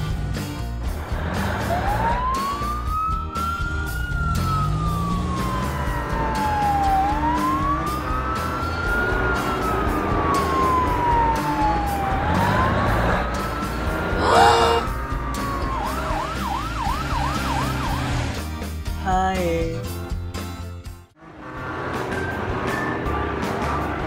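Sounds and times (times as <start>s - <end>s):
background music: 0.0s - 21.2s
police siren wailing: 1.6s - 18.2s.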